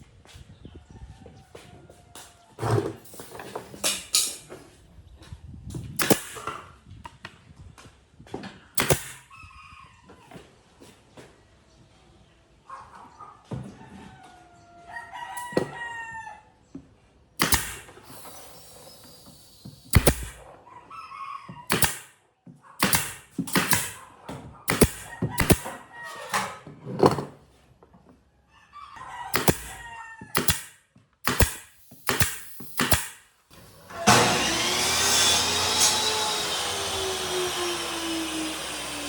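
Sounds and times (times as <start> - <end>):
rooster crowing: 25.1 - 26.4, 28.7 - 30.4.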